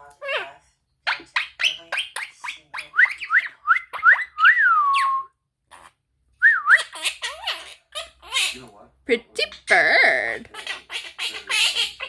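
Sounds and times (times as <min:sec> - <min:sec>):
parrot whistling: 0:01.5 - 0:05.3, 0:06.4 - 0:07.6.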